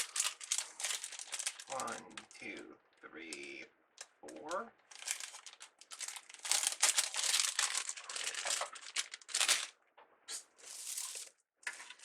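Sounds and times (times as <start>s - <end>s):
mesh and ribbon crinkling: 0.0s - 2.3s, 3.3s - 12.0s.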